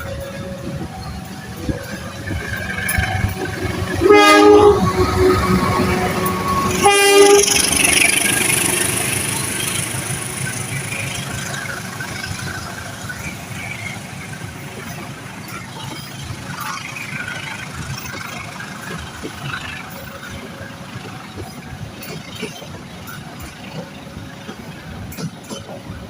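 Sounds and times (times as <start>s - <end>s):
train rumble and clatter: 0.0s - 26.0s
train horn blasts: 2.9s - 8.6s.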